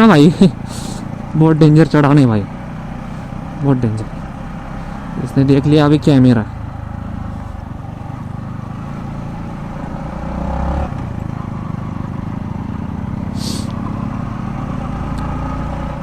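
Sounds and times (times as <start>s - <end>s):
motorcycle engine running: 0.0s - 16.0s
short hiss: 13.4s - 13.8s.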